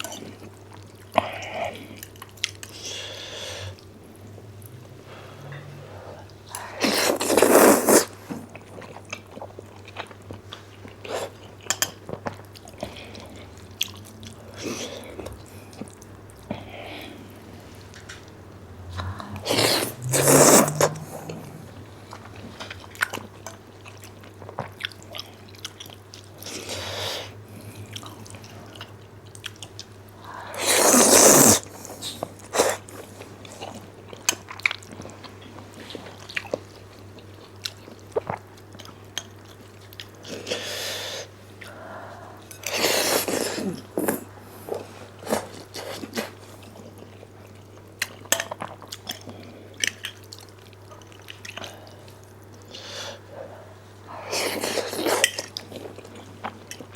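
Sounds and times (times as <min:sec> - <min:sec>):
wet chewing and smacking: 0:00.0 - 0:02.8, 0:06.5 - 0:16.7, 0:17.3 - 0:26.8, 0:27.5 - 0:30.2, 0:31.4 - 0:40.5, 0:42.4 - 0:52.8, 0:54.4 - 0:56.9
noodle slurps: 0:06.6 - 0:08.5, 0:19.0 - 0:23.2, 0:30.6 - 0:33.0, 0:42.6 - 0:46.5, 0:54.2 - 0:56.0
steady low hum: 0:08.2 - 0:30.6.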